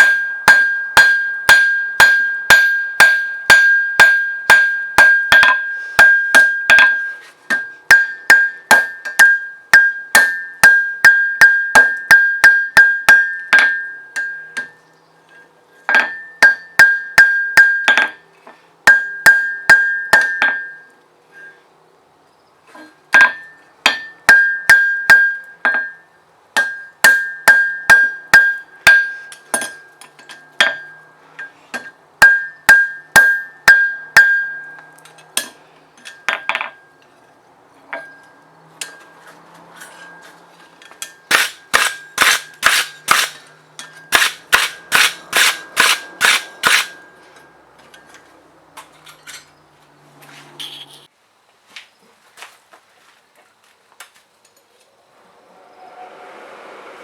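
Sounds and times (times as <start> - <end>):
hammer striking steel on anvil: 0.0 - 14.8, 15.9 - 18.2, 18.9 - 21.5, 23.1 - 37.0, 37.9 - 39.2, 39.8 - 48.2.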